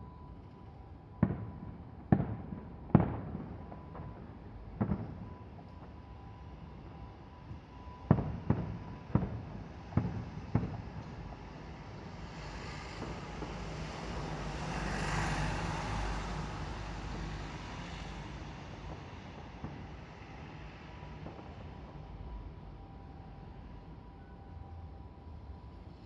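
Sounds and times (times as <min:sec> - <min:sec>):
fireworks bangs: 0:01.2 - 0:05.2, 0:08.1 - 0:11.0.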